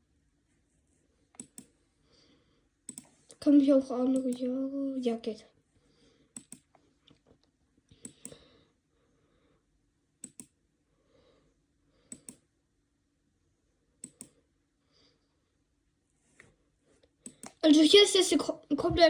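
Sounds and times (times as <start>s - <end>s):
faint computer mouse clicks: 1.4s - 1.7s, 2.9s - 3.4s, 6.4s - 6.8s, 7.9s - 8.4s, 10.2s - 10.5s, 12.1s - 12.4s, 14.0s - 14.4s, 17.2s - 17.6s.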